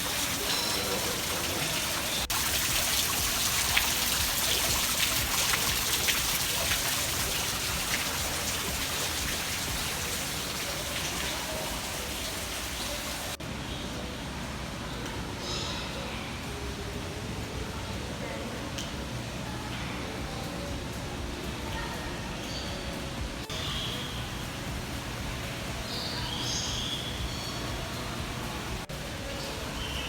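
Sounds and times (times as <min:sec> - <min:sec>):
rushing splashing water: 0:00.0 - 0:13.4.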